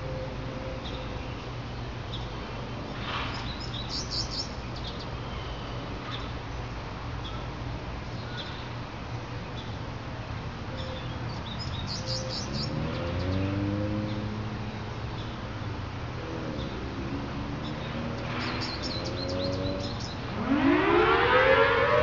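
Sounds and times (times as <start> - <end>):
small birds chirping: 0.8 - 7.5, 8.1 - 8.8, 10.7 - 20.4
warning siren wailing: 19.0 - 22.0.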